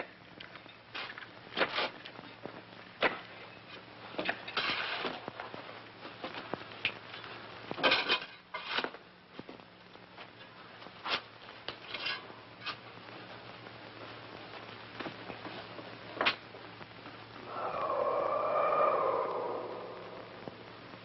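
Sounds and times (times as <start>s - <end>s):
faint steady hum: 0.0s - 21.0s
wavering drone with rushing edge: 17.4s - 21.0s.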